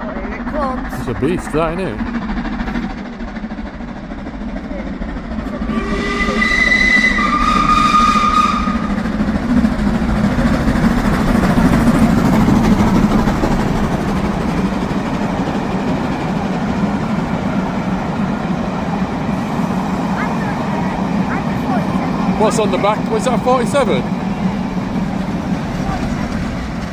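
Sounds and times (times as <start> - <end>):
train rumbling past: 0.0 - 26.9
two-note train whistle blast: 5.7 - 9.0.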